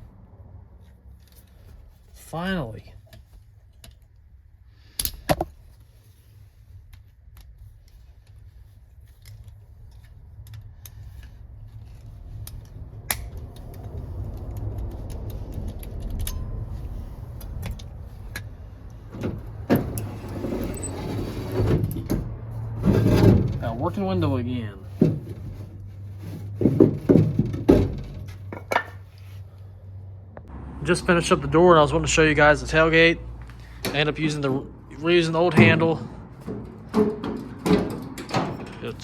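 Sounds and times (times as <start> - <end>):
rumble: 0.0 - 39.0
car window rattling and sliding: 17.2 - 24.3.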